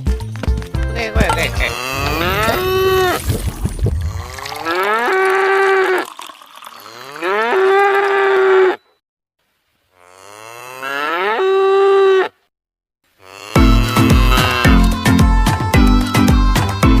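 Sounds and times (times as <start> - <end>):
cow mooing: 1.5 - 3.2, 6.8 - 8.8, 10.0 - 12.3, 13.2 - 14.9.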